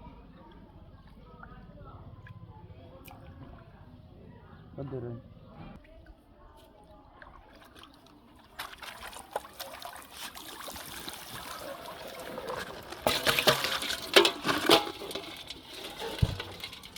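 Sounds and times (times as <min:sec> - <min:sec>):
small clicks and trickles: 0:05.8 - 0:16.9
water sloshing and splashing: 0:05.8 - 0:16.9.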